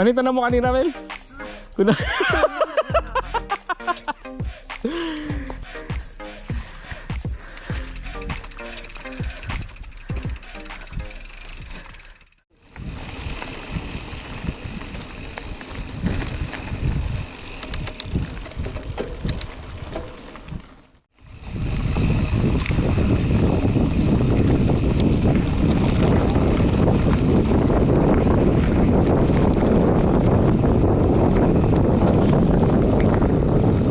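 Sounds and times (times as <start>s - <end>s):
bike rattles and clicks: 0.0s - 33.9s
bike tyres rumbling on dirt: 6.6s - 33.9s
wind rushing on microphone: 12.7s - 33.9s.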